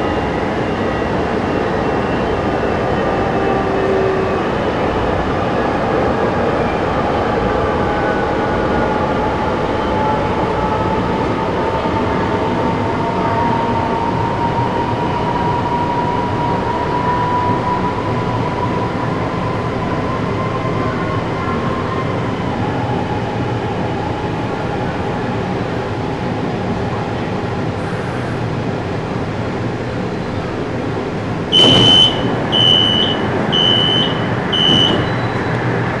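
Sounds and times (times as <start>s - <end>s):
train running noise: 0.0s - 36.0s
high door beeps: 31.5s - 35.6s.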